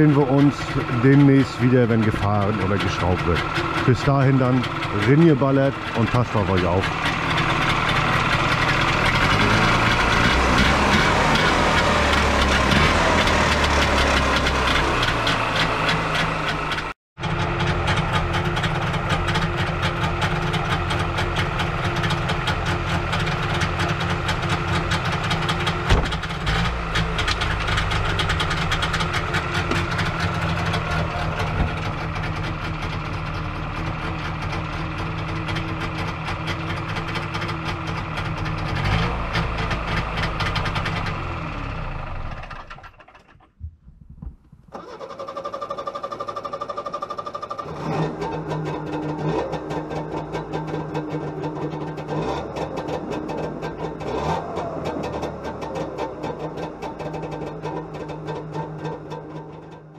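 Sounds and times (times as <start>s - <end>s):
two-stroke engine running: 0.0s - 59.9s.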